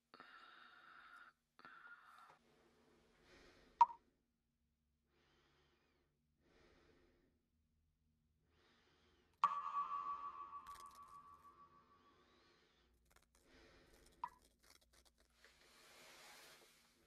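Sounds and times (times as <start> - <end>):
person breathing faintly: 0.1 - 3.8.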